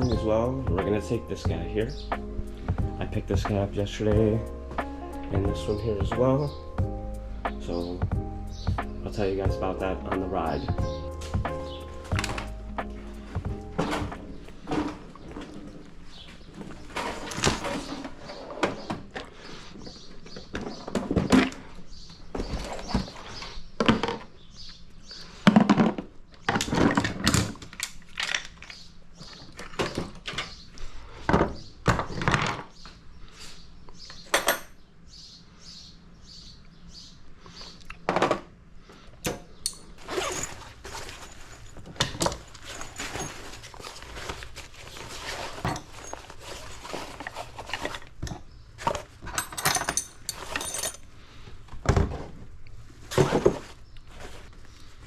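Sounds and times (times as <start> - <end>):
objects thudding and clattering: 10.8 - 24.4, 25.4 - 28.6, 31.2 - 32.8, 38.0 - 38.6, 39.2 - 54.6.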